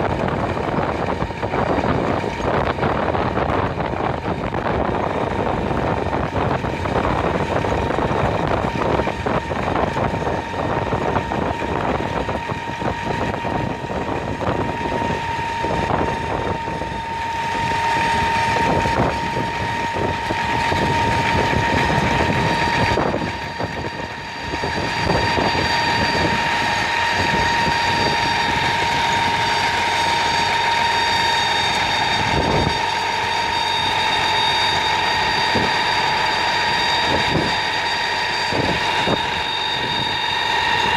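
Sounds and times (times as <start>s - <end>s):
garbage truck engine running: 0.0s - 40.9s
steady high whine: 0.0s - 40.9s.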